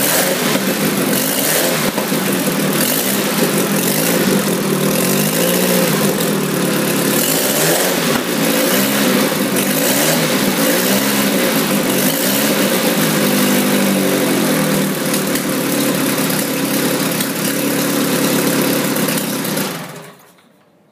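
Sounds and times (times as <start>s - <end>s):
engine revving: 0.0s - 20.1s.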